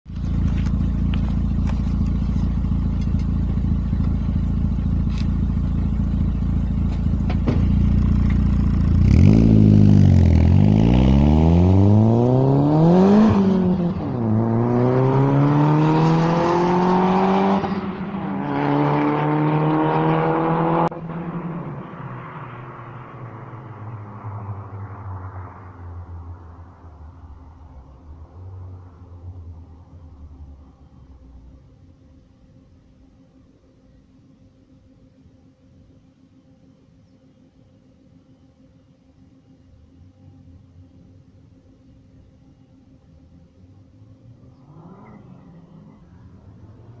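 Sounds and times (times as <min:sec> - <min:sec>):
car engine revving: 0:00.1 - 0:27.4, 0:43.8 - 0:47.0.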